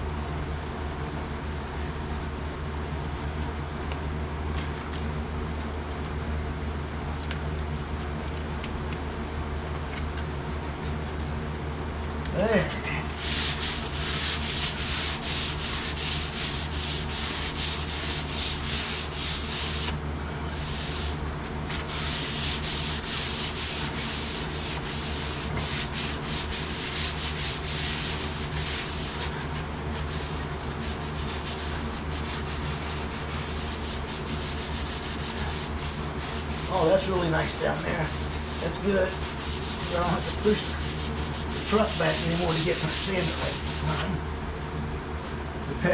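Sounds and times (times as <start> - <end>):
steady low hum: 0.0 - 45.9
sandpaper rubbing on sheet metal: 13.2 - 29.4, 30.0 - 44.1.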